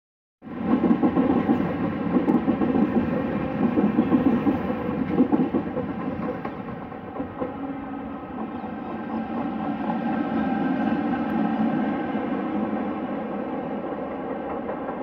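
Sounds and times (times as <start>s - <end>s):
train wheels rumbling on rail: 0.4s - 15.0s.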